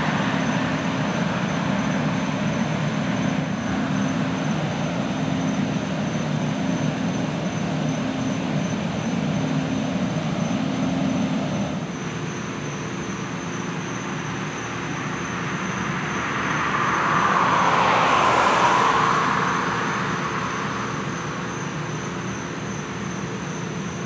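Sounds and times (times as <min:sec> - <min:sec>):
low engine hum: 0:00.0 - 0:24.0
vehicle passing by: 0:15.4 - 0:22.0.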